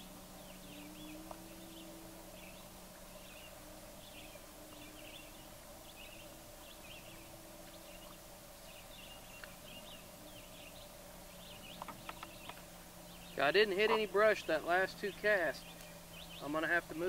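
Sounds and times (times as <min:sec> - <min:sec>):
faint birds chirping: 0:00.0 - 0:17.0
low hum: 0:00.0 - 0:17.0.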